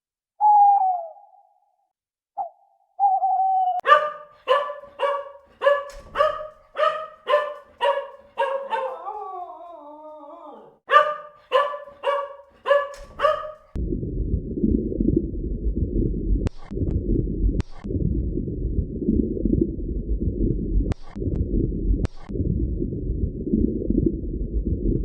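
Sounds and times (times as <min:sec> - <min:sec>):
howl-like call: 0:03.2 - 0:13.7
animal barking: 0:03.8 - 0:13.8.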